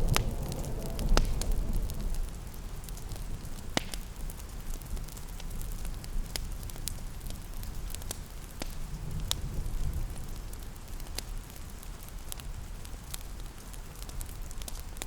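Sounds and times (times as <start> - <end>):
rain hissing: 0.0 - 4.7
wood fire crackling: 0.0 - 15.0.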